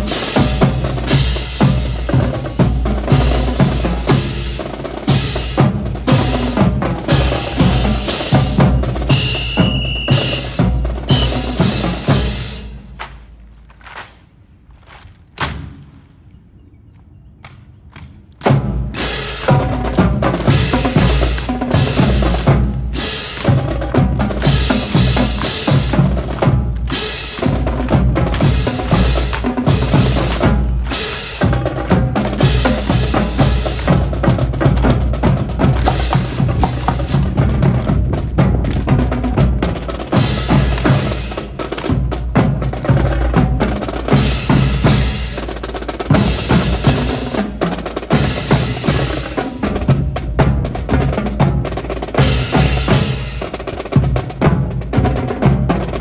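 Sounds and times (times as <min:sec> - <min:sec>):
snare and bass drum cadence: 0:00.0 - 0:16.2, 0:17.4 - 0:56.0
sharp wooden clacks: 0:12.8 - 0:16.4, 0:17.0 - 0:18.6.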